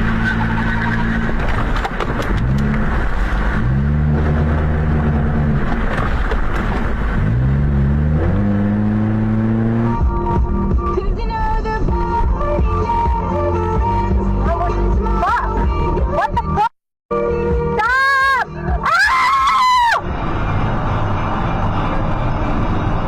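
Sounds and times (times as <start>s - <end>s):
car engine accelerating: 0.0s - 14.2s
road noise: 0.0s - 23.0s.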